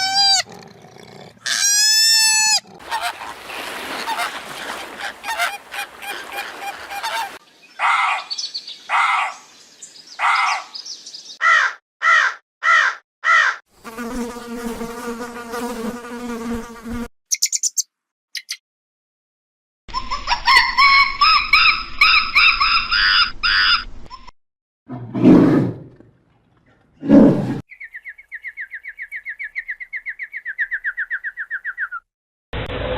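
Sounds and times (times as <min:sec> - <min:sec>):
animal calls: 0:01.4 - 0:09.4.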